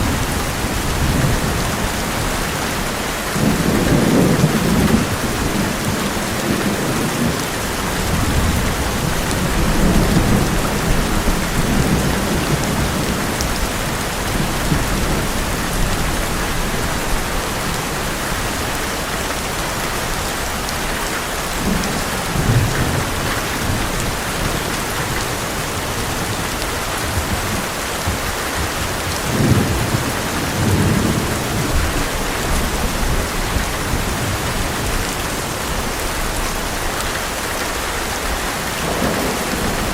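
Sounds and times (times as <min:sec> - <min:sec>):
thunder rumbling: 0:00.0 - 0:18.7, 0:38.2 - 0:39.9
heavy rain on a metal roof: 0:00.0 - 0:39.9.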